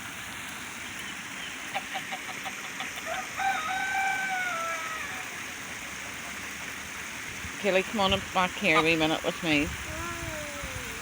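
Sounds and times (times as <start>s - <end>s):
running water: 0.0s - 11.0s
rooster crowing: 3.0s - 5.2s.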